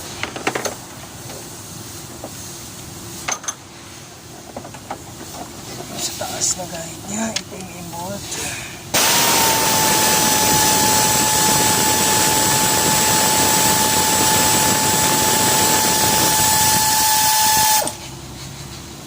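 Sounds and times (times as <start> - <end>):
power tool whining: 8.9 - 18.0.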